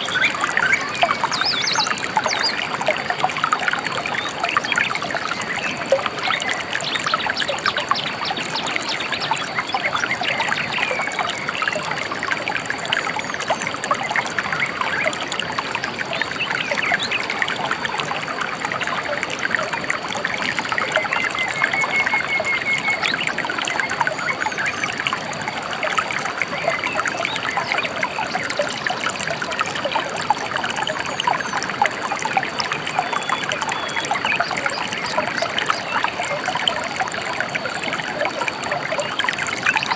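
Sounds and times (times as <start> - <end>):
river water babbling over stones: 0.0 - 39.9.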